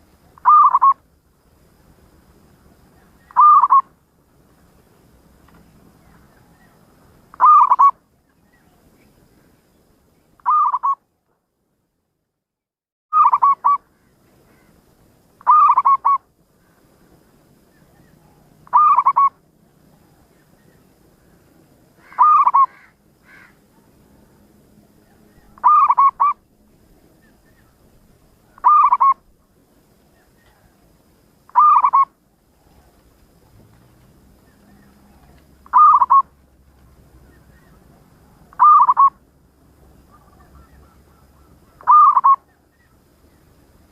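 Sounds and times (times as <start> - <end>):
dove cooing: 0.4 - 1.0, 3.2 - 3.9, 7.4 - 8.0, 10.4 - 11.0, 13.2 - 13.8, 15.4 - 16.2, 18.1 - 19.4, 22.0 - 23.9, 25.1 - 26.4, 28.5 - 29.3, 31.5 - 33.0, 34.4 - 36.4, 37.3 - 39.2, 40.0 - 42.6.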